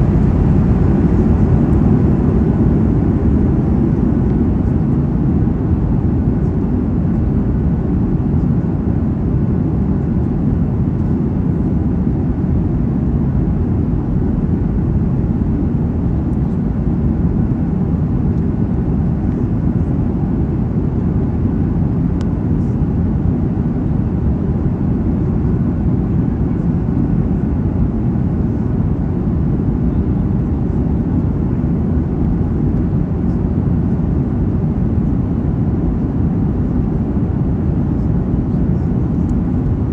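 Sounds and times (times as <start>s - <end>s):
rushing air: 0.0s - 4.8s
jet engine rumble in cabin: 0.0s - 39.9s.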